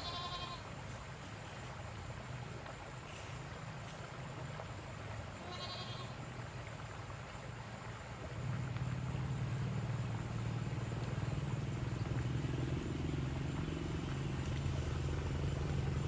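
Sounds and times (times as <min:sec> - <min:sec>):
goat bleating: 0:00.0 - 0:00.6, 0:05.4 - 0:06.2
low steady hum: 0:00.0 - 0:16.0.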